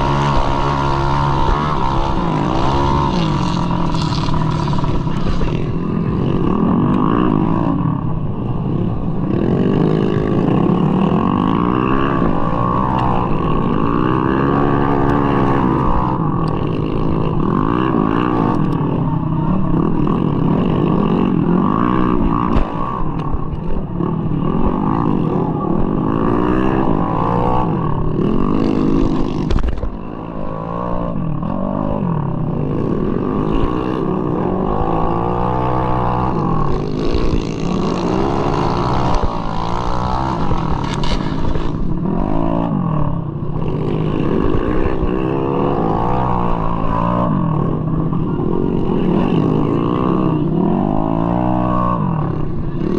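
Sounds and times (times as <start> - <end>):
scooter engine revving: 0.0 - 31.5, 34.1 - 49.8.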